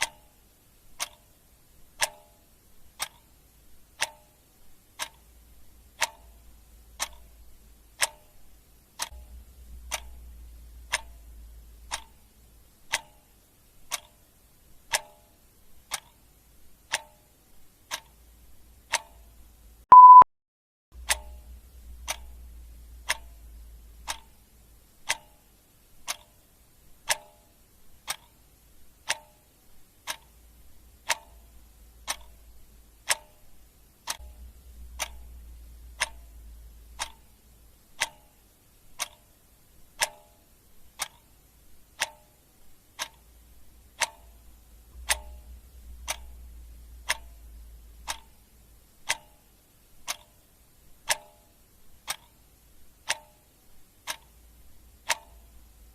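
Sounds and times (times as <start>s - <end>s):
clock ticking: 0.0s - 20.2s, 21.0s - 55.9s
faint low rumble: 4.6s - 14.9s, 21.0s - 26.1s, 27.8s - 40.0s, 41.4s - 51.1s, 53.8s - 55.9s.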